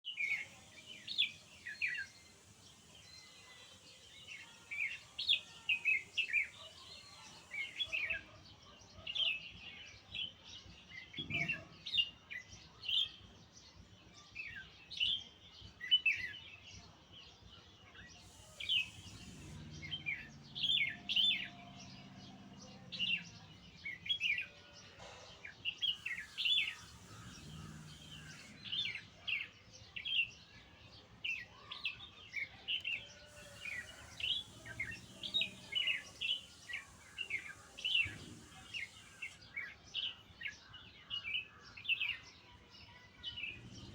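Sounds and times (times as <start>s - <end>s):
songbird chirping: 0.0s - 43.9s
faint low hum: 18.2s - 24.0s, 26.1s - 29.0s, 33.3s - 39.4s.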